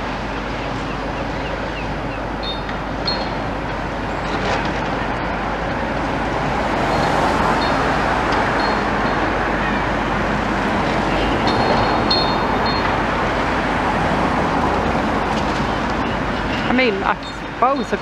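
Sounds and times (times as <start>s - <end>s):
excavator engine working: 0.0s - 18.0s
road traffic: 0.0s - 18.0s.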